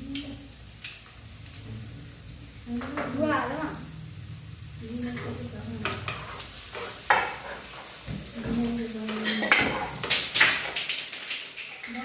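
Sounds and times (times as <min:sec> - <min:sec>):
ferns sizzling in a frying pan: 0:00.0 - 0:12.0
utensil scraping and knocking pan: 0:05.2 - 0:11.2.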